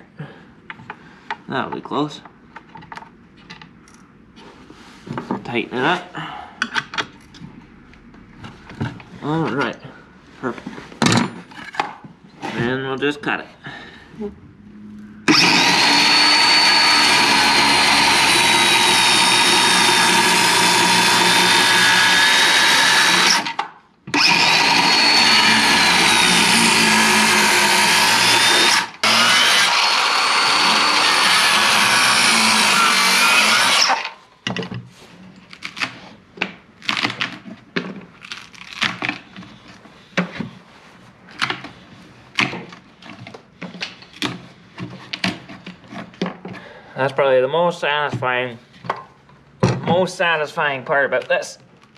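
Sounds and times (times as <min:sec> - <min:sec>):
circular saw cutting wood: 0:15.2 - 0:34.2.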